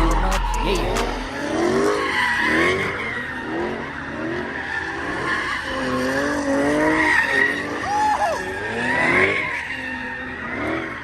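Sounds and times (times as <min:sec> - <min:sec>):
car tyres squealing: 0:00.5 - 0:11.0.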